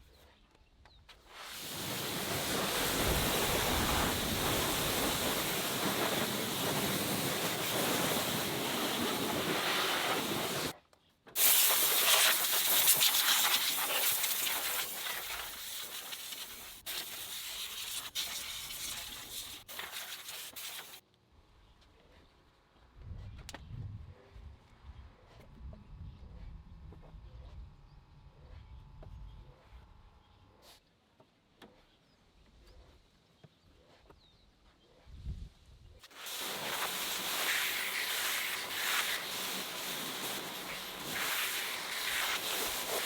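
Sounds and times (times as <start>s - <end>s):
cleaning equipment spraying hiss: 1.3s - 10.7s, 11.4s - 21.0s, 36.1s - 43.0s.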